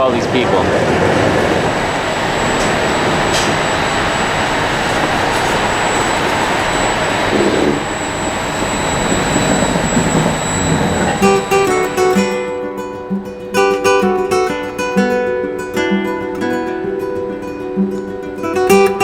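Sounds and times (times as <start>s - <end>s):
electric train running: 0.6s - 12.5s
high-pitched whine: 1.1s - 12.6s.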